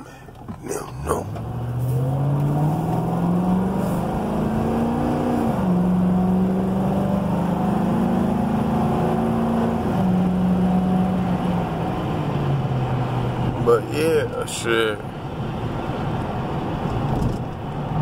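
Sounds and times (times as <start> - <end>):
car engine accelerating: 0.3 - 13.8.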